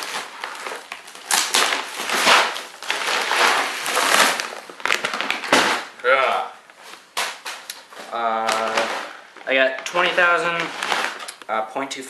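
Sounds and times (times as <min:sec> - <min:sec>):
plastic pellets rattling in package: 0:08.4 - 0:11.4.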